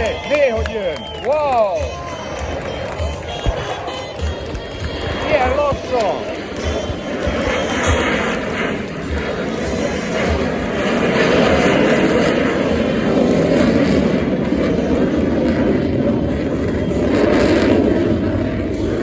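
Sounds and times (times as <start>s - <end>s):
aircraft engine rush: 0.0s - 19.0s.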